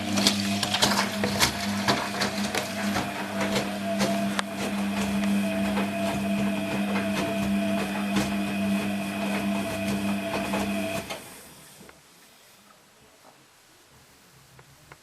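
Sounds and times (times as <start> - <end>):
washing machine motor humming: 0.0 - 11.4.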